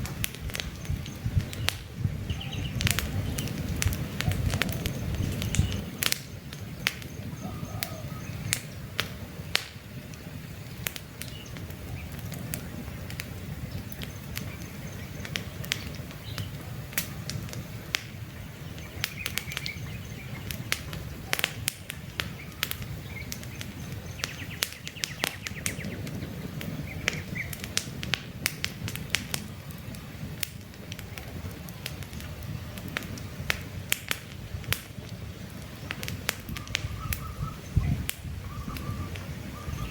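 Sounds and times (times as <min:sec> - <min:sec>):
campfire crackling and popping: 0:00.0 - 0:39.9
low rumble of flames: 0:00.0 - 0:39.9
faint bird chirps: 0:06.7 - 0:08.8, 0:36.6 - 0:39.9.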